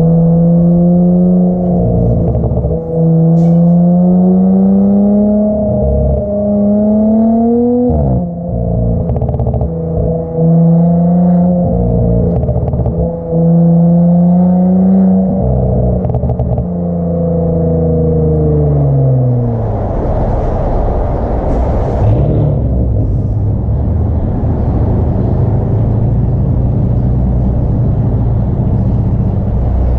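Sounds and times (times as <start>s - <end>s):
car engine revving: 0.0s - 29.9s
rushing noise: 18.8s - 26.9s.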